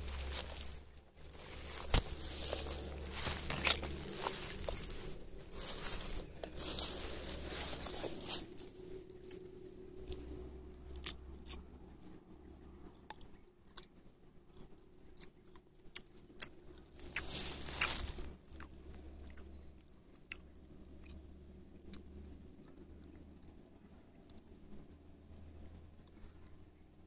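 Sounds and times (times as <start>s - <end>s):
dry leaves and twigs crackling: 0.0s - 11.6s, 16.1s - 18.7s
loud crunching rustle: 0.0s - 11.6s, 16.0s - 19.1s.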